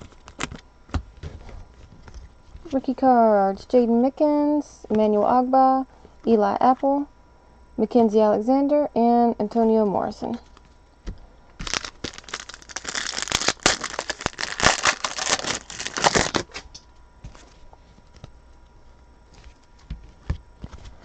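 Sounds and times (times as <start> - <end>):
foil wrapper tearing and crinkling: 11.6 - 16.7.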